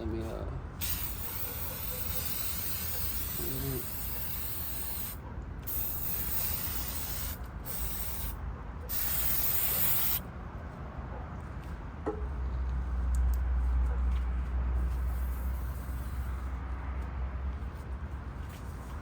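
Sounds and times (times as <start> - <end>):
aerosol spray can hissing: 0.8 - 10.2.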